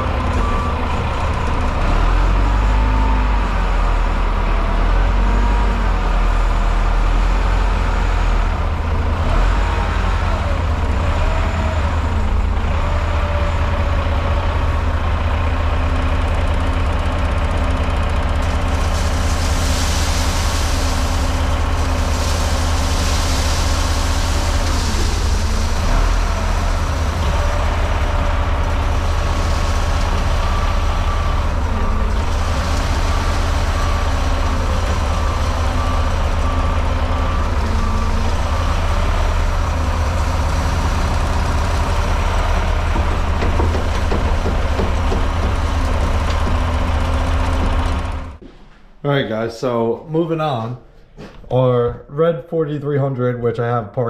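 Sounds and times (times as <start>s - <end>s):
heavy diesel equipment running: 0.0s - 48.6s
rushing hiss: 18.8s - 26.2s.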